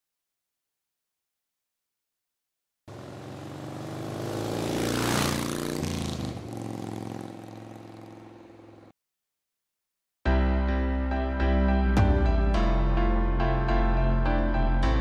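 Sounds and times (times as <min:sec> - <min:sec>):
car driving past: 0:02.9 - 0:08.9.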